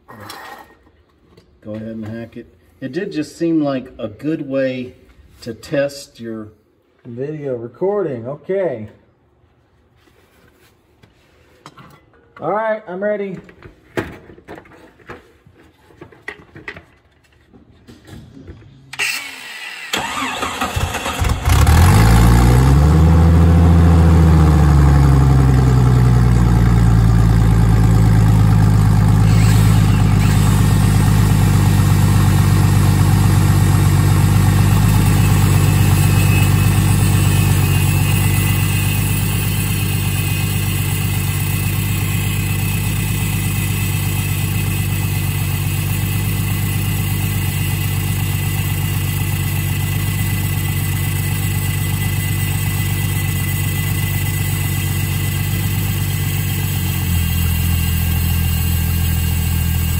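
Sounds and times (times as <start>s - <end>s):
car engine starting and idling: 19.0s - 59.9s
angle grinder cutting steel: 29.0s - 32.4s, 33.8s - 50.4s.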